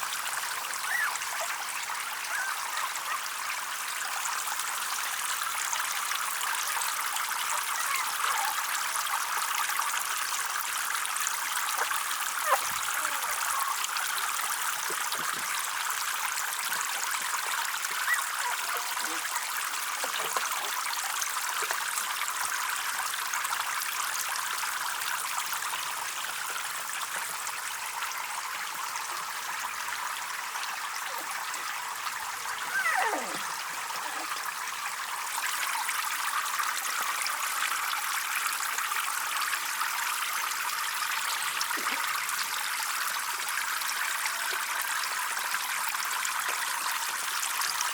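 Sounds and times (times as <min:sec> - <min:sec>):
water trickling into pond: 0:00.0 - 0:47.9.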